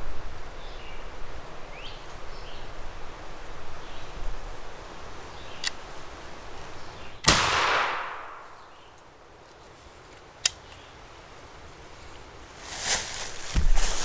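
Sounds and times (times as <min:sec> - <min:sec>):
shotgun shot echoing: 0:07.2 - 0:08.8.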